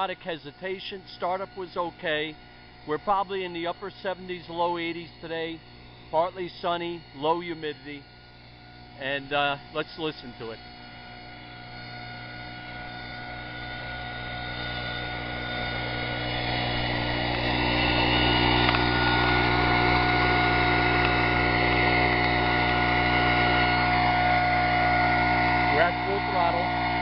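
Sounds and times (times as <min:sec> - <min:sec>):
leaf blower engine running: 0:00.0 - 0:27.0.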